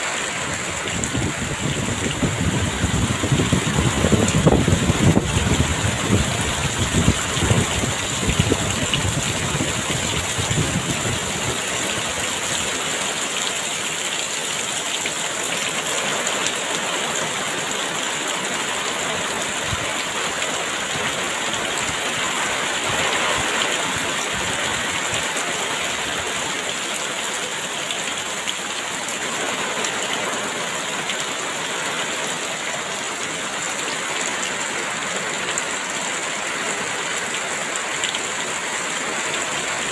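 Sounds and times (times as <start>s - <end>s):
heavy rain pouring: 0.0s - 39.9s
wind gusts rumbling: 0.2s - 12.7s.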